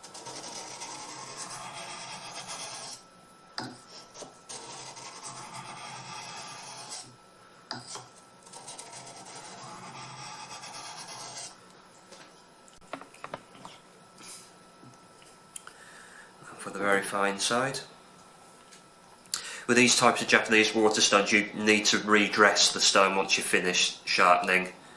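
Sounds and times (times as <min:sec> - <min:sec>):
knife rubbing on whetstone: 0:00.2 - 0:03.0, 0:03.8 - 0:07.1, 0:07.8 - 0:11.6.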